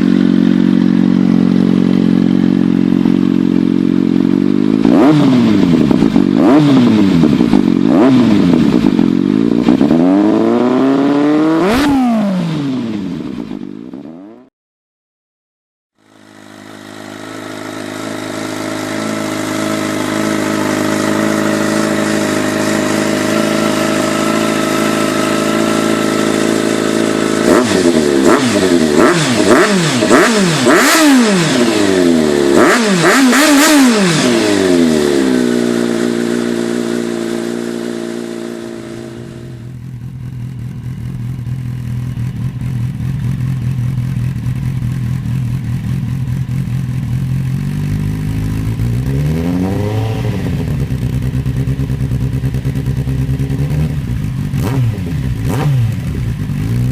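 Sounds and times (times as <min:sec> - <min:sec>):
second engine idling low: 0:00.0 - 0:04.8, 0:16.0 - 0:27.4, 0:35.5 - 0:49.1, 0:49.7 - 0:54.6
motorcycle engine idling and revving: 0:00.0 - 0:14.5, 0:16.0 - 0:56.9.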